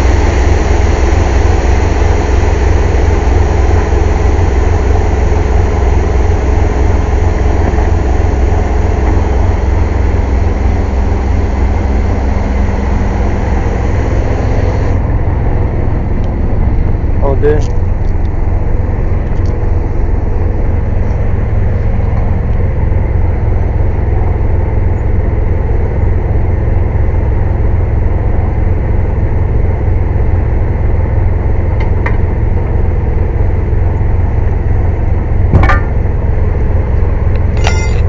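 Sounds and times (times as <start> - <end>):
air compressor running: 0.0 - 38.0
sharp knock: 35.6 - 36.0.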